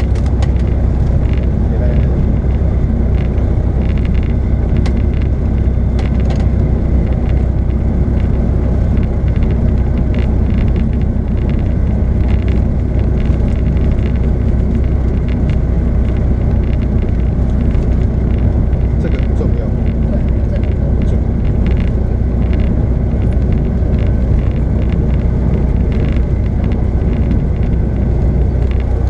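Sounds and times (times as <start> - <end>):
faint ticks and rattles: 0.0 - 29.0
low engine drone in cabin: 0.0 - 29.0.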